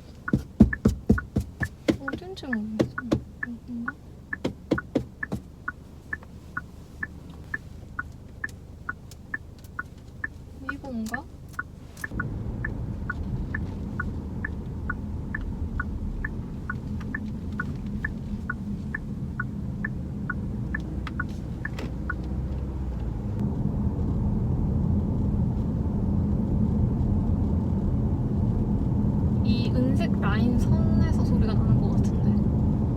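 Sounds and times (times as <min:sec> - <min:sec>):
road and engine rumble: 0:00.0 - 0:32.9.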